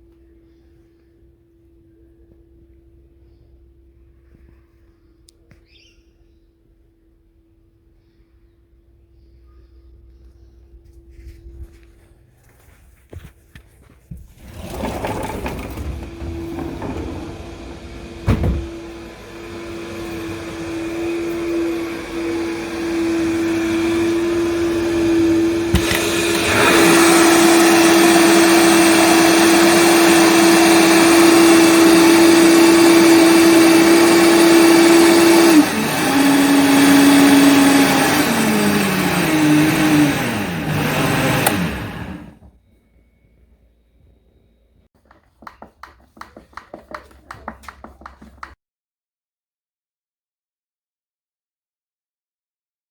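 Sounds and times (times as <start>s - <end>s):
blender motor whining: 14.4s - 42.5s.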